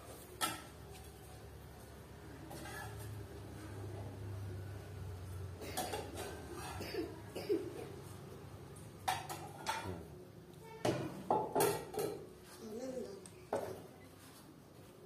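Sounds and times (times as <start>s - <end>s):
kitchenware knocks and clinks: 5.6s - 6.9s, 9.0s - 10.1s, 10.8s - 12.3s.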